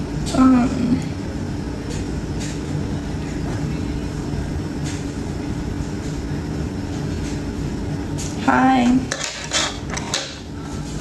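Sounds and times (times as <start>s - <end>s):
electric fan whirring hum: 0.0s - 11.0s.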